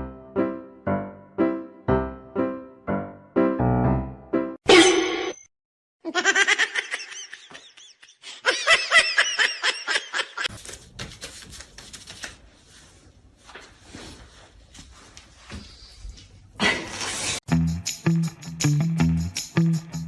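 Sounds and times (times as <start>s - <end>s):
high-pitched laughter: 6.0s - 10.5s
shuffling noise: 12.0s - 17.4s.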